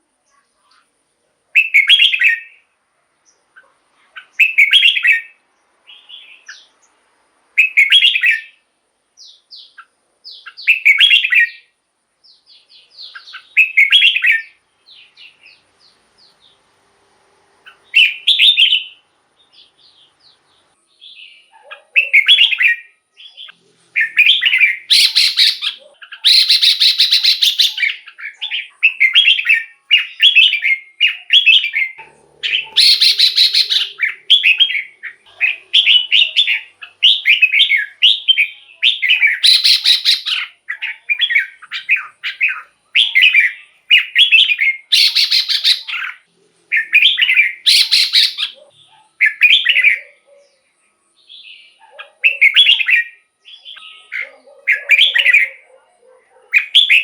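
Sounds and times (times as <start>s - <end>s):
harsh buzzy bird calls: 0.0s - 57.0s
bird whistling quick phrases: 24.0s - 28.0s, 32.4s - 34.8s, 35.8s - 40.5s, 41.2s - 46.1s, 46.7s - 48.6s.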